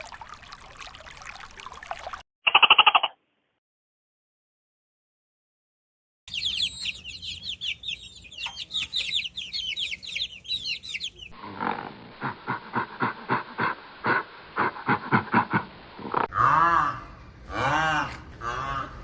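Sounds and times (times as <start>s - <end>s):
small bird chirping: 6.3s - 11.4s.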